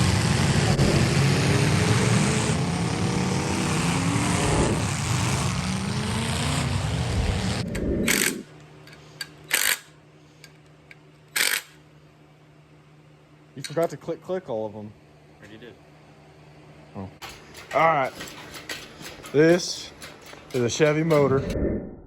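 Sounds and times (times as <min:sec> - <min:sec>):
vehicle engine running: 0:00.0 - 0:08.4.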